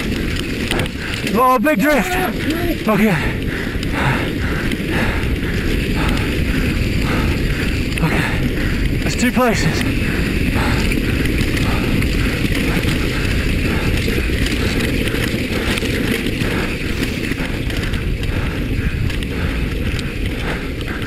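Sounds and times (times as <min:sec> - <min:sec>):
mountain bike rattle and tyre noise: 0:00.0 - 0:21.0
wind rushing over microphone: 0:00.0 - 0:21.0.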